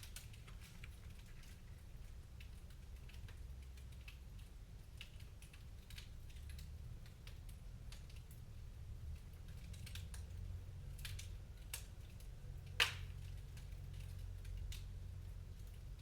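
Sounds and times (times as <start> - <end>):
low fire rumble: 0.0 - 16.0
wood fire crackling: 0.0 - 16.0.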